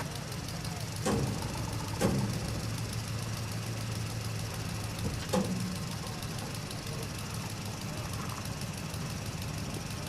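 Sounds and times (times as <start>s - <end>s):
truck engine running: 0.0s - 10.0s
sharp knocks: 2.0s - 2.4s.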